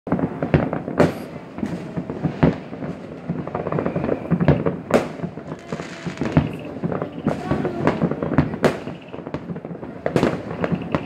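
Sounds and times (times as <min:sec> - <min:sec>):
fireworks bangs: 0:00.1 - 0:11.0
fireworks crackling: 0:00.1 - 0:11.0.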